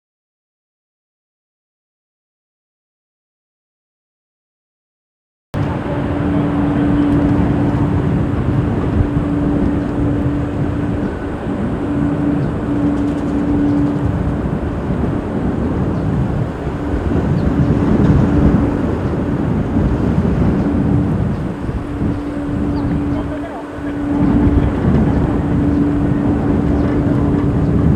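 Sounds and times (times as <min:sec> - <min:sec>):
jet engines rumbling: 0:05.6 - 0:27.9
steady hum: 0:05.6 - 0:27.9
wind buffeting microphone: 0:05.6 - 0:27.9.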